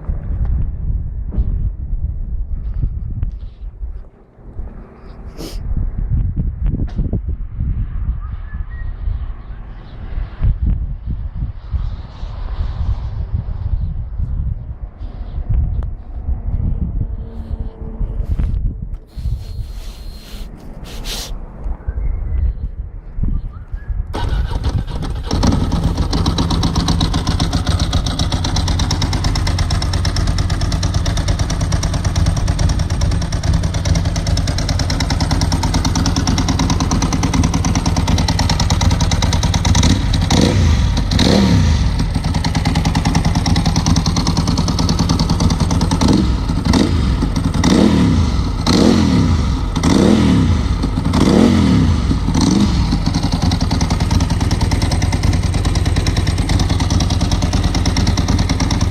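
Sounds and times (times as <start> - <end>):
motorcycle engine idling and revving: 24.0 - 58.9.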